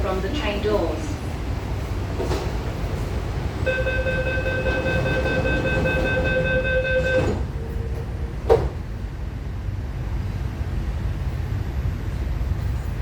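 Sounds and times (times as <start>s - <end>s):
train rumble: 0.0s - 13.0s
door-closing warning tone: 3.7s - 7.9s.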